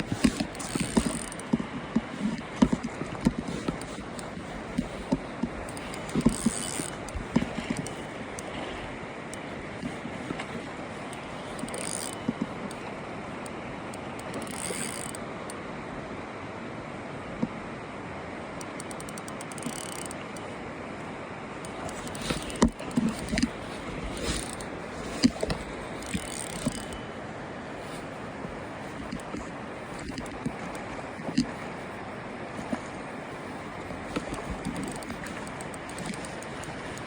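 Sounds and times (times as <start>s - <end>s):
river water rushing: 0.0s - 37.0s
wind: 0.0s - 37.0s
fishing reel clicking: 0.1s - 1.6s, 2.8s - 8.5s, 11.1s - 12.8s, 13.9s - 15.2s, 18.6s - 20.4s, 24.2s - 27.0s, 34.1s - 37.0s.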